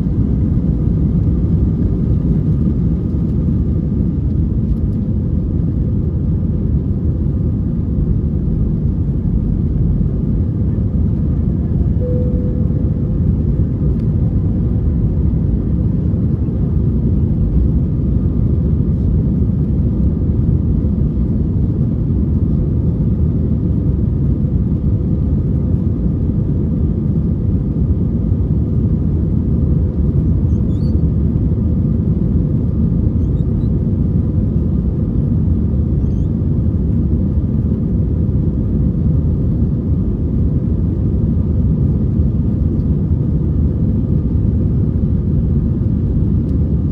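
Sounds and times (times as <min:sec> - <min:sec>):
jet engines and airflow rumble: 0:00.0 - 0:46.9
faint steady hum: 0:06.0 - 0:19.1.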